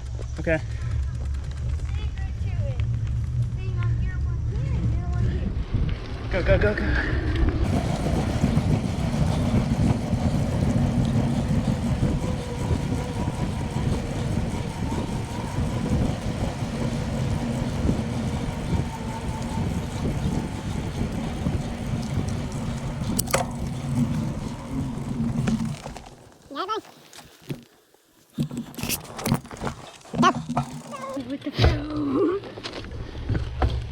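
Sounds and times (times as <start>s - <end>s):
bicycle tyres rolling on road: 0.0s - 31.5s
wind rumble on microphone: 0.1s - 26.0s.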